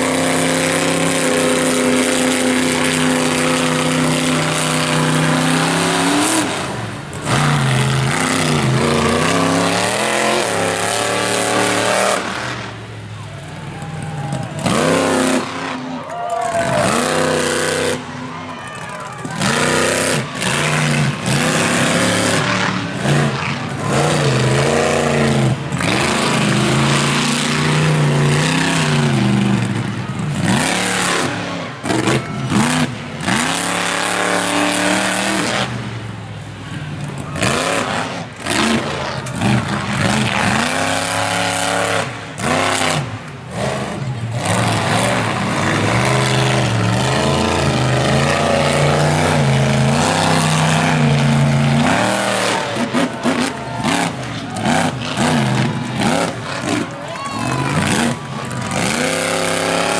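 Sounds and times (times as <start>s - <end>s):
monster truck engine revving: 0.0s - 59.9s.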